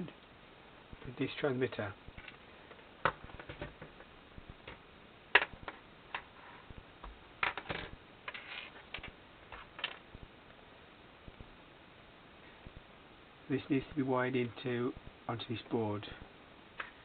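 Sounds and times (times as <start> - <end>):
plastic parts clicking and tapping: 7.4 - 10.0.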